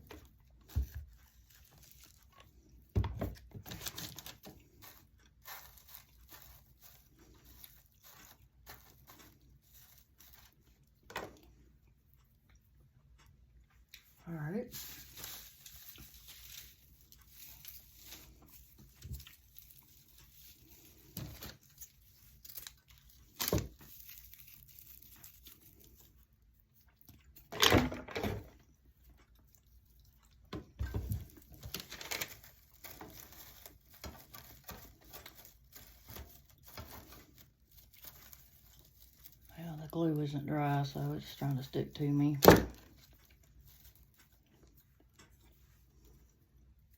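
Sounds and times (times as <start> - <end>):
raffia rustling and crinkling: 0.0 - 11.5, 14.0 - 27.5, 28.2 - 46.9
small clicks and knocks: 0.0 - 14.2.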